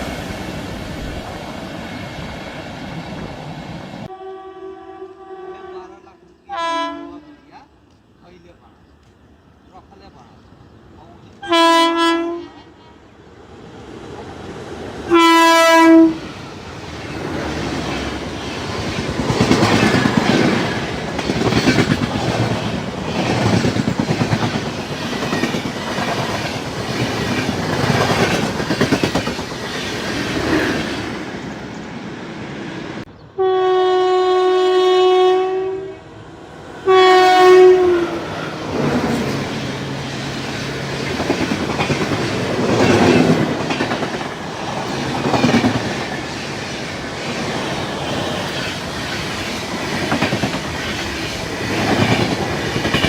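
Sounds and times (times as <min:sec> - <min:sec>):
locomotive horn blasts: 0:04.1 - 0:07.4, 0:11.4 - 0:12.6, 0:15.1 - 0:16.2, 0:33.4 - 0:36.1, 0:36.9 - 0:38.2
train wheels clacking on rails: 0:17.0 - 0:31.0, 0:38.7 - 0:53.0.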